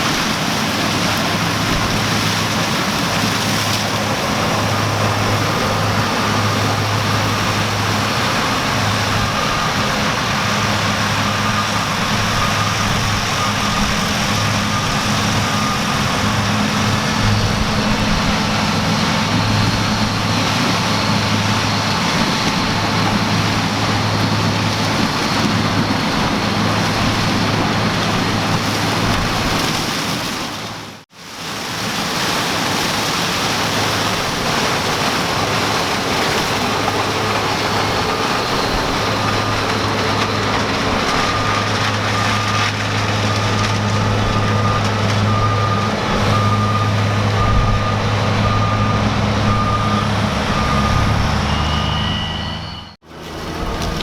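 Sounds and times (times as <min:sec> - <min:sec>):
combine harvester humming: 0:00.0 - 0:31.0, 0:31.6 - 0:54.0
short warning beeps: 0:41.1 - 0:53.0.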